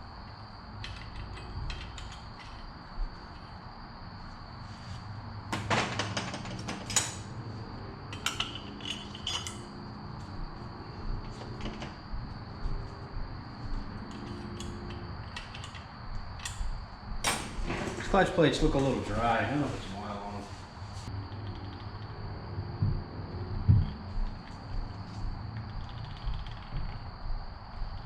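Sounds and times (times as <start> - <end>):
metal tools clinking and knocking: 0.8 - 2.7, 5.6 - 7.3, 8.1 - 9.7, 14.1 - 16.7.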